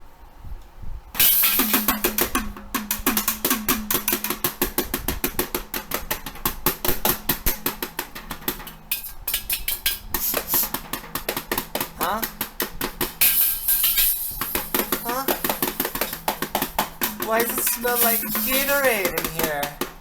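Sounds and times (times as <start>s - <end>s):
crashing cymbals: 1.2s - 2.3s, 9.0s - 10.9s, 13.2s - 19.7s
drum kit fast beat: 1.4s - 20.0s.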